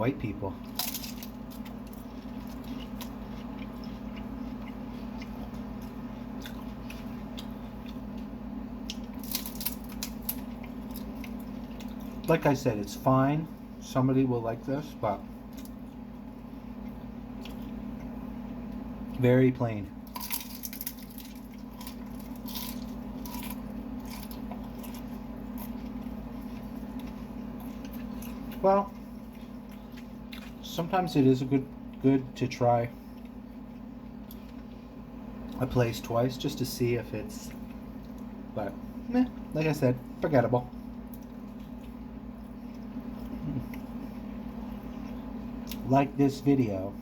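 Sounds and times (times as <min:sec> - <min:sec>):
steady low hum: 0:00.0 - 0:47.0
person chewing food: 0:00.6 - 0:12.3, 0:15.3 - 0:19.2, 0:20.1 - 0:30.9, 0:33.0 - 0:35.7, 0:37.5 - 0:39.5, 0:40.7 - 0:45.9.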